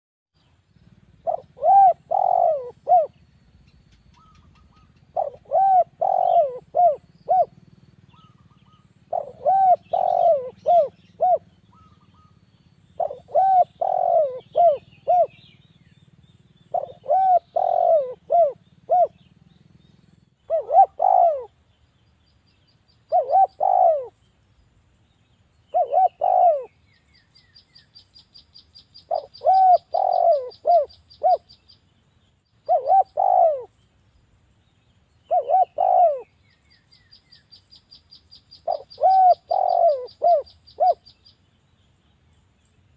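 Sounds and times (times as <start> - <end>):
dove cooing: 1.0 - 3.3, 4.0 - 12.4, 13.0 - 15.6, 16.7 - 19.3, 20.4 - 21.6, 23.1 - 24.2, 25.7 - 26.9, 29.0 - 31.6, 32.6 - 33.8, 35.3 - 36.5, 38.5 - 41.1.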